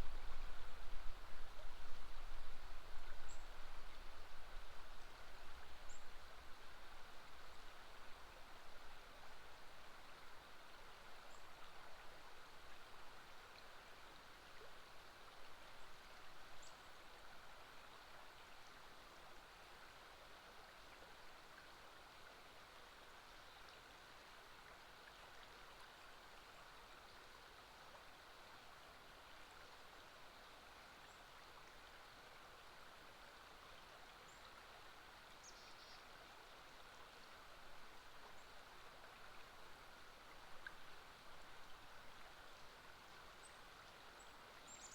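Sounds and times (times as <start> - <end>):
faint river water rushing: 0.0 - 44.9
faint bird chirps: 35.4 - 36.1.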